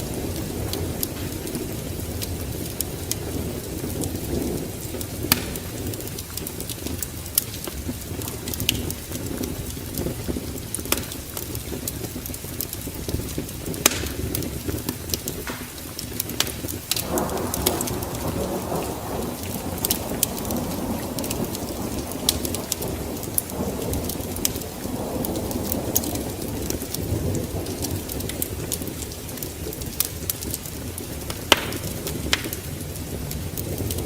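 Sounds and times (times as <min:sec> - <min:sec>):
thunder rolling: 0:00.0 - 0:07.0, 0:17.0 - 0:34.0
sharp crackles: 0:00.0 - 0:34.0
steady rain: 0:00.0 - 0:34.0.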